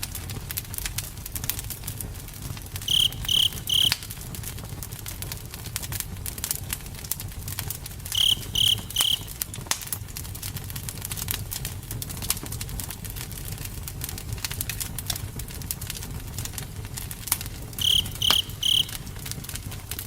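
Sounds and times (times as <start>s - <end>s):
campfire crackling: 0.2s - 20.0s
high animal chirps: 2.9s - 4.0s, 8.1s - 9.3s, 17.8s - 19.0s.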